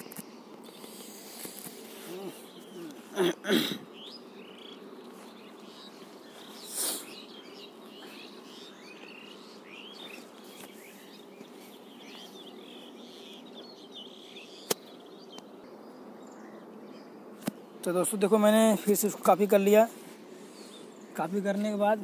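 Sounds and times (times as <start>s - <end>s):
faint bird chirps: 1.4s - 17.2s
sharp click: 14.6s - 15.5s.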